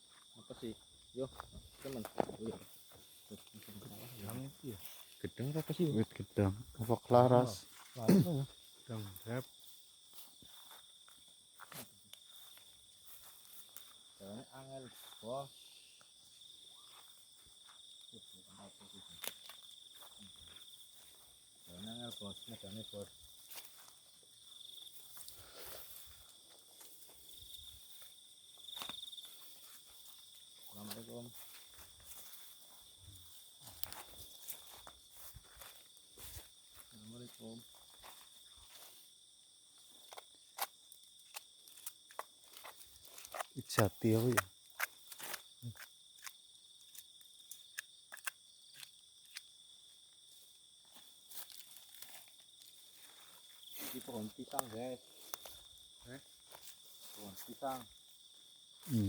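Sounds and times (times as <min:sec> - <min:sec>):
night insects trilling: 0:00.0 - 0:59.0
footsteps rustling through vegetation: 0:01.3 - 0:06.0, 0:07.5 - 0:14.2, 0:19.0 - 0:39.2, 0:50.3 - 0:59.0.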